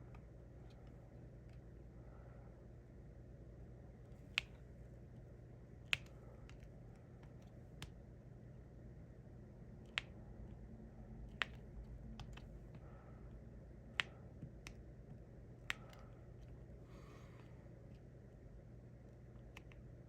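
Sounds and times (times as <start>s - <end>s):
low steady hum: 0.0s - 20.0s
pen tapping clicks: 11.3s - 12.6s.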